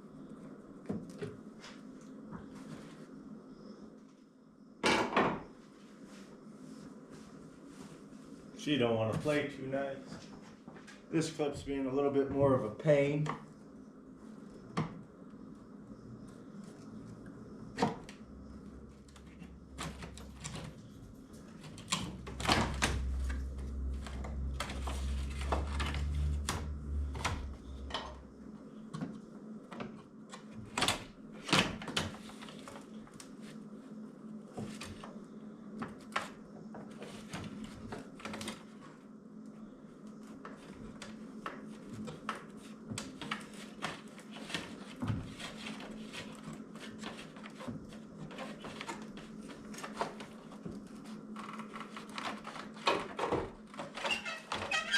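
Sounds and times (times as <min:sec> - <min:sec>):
low rumble: 0:22.4 - 0:28.3.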